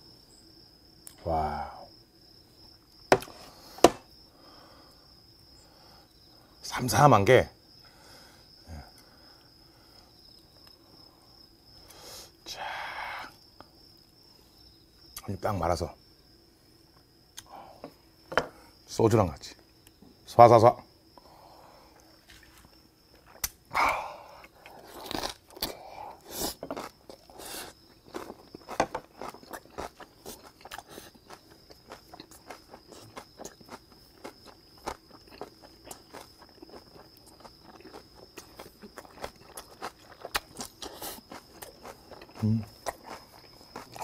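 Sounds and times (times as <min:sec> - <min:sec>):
crunchy chewing: 0:21.0 - 0:44.0.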